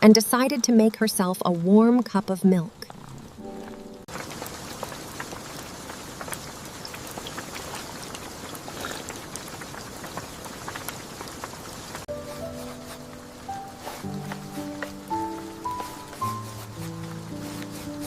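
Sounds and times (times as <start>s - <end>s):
steady rain: 2.9s - 18.0s
soft music: 3.4s - 4.1s, 12.1s - 18.0s.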